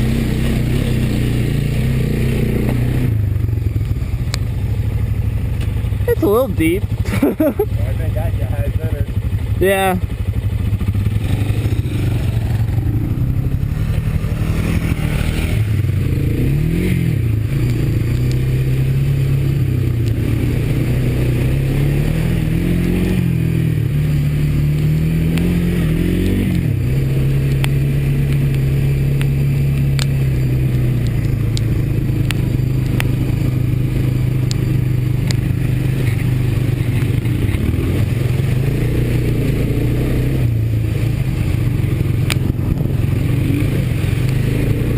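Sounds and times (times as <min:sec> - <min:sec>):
atv engine revving: 0:00.0 - 0:44.9
sharp clicks and clatter: 0:30.7 - 0:33.3, 0:34.4 - 0:37.7.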